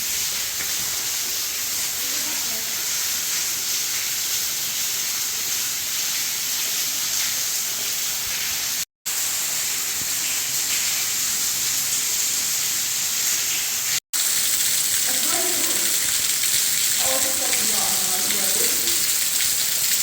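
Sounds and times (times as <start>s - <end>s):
waterfall rushing: 14.2s - 19.4s.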